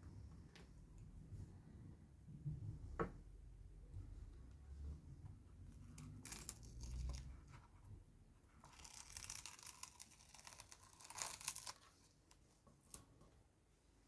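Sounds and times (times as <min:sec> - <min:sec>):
paper rustling and tearing: 0:08.6 - 0:13.0.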